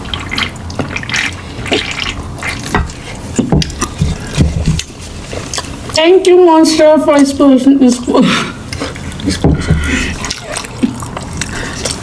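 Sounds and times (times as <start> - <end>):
wet chewing and lip smacking: 0.0 - 6.0, 8.6 - 12.0.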